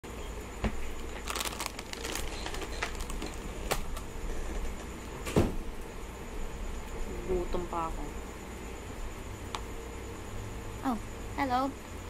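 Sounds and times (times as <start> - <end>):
crinkling: 0.8 - 4.9.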